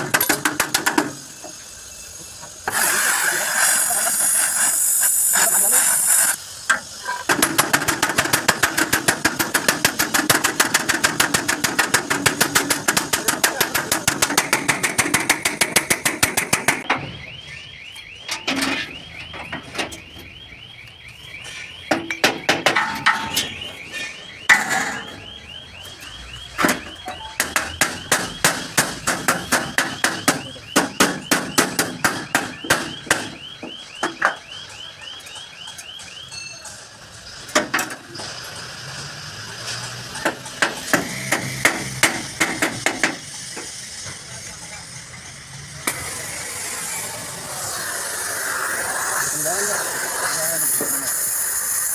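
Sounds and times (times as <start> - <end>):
hammer striking sheet metal: 7.3 - 17.0, 21.9 - 23.6, 27.1 - 33.3
high warbling tone: 22.9 - 28.1.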